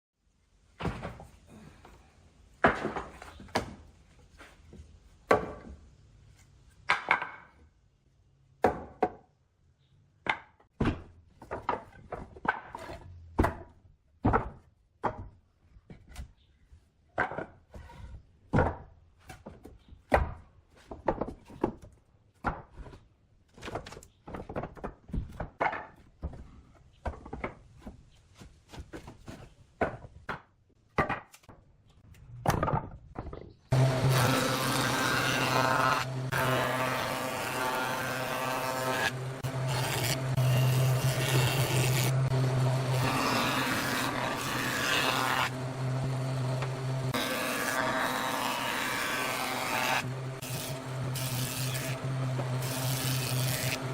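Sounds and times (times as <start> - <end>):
wooden knocks and thunks: 0.8 - 1.4, 2.6 - 3.9, 4.7 - 5.8, 10.2 - 16.3, 17.2 - 31.6, 32.4 - 33.7.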